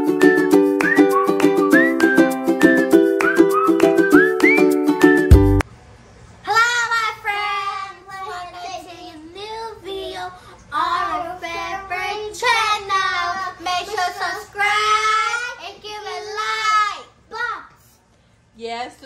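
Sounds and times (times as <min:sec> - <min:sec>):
child singing in a high voice: 0:06.5 - 0:17.5.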